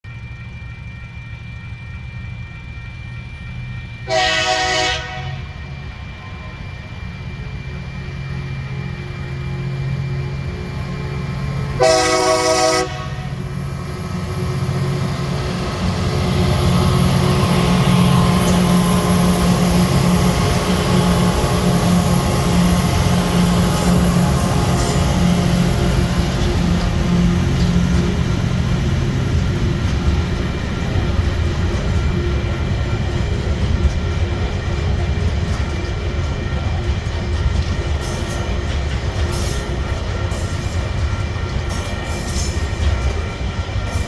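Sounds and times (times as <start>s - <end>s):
locomotive engine rumble: 0.1s - 44.0s
train horn chord: 4.0s - 5.6s, 11.8s - 13.4s.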